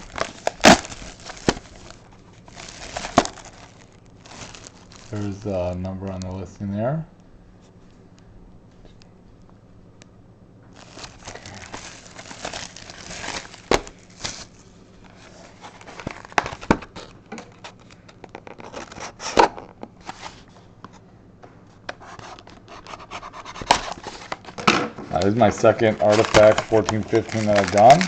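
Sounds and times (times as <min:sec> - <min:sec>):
packaging crinkling and tearing: 0:00.0 - 0:05.4, 0:10.8 - 0:20.2, 0:23.5 - 0:28.0.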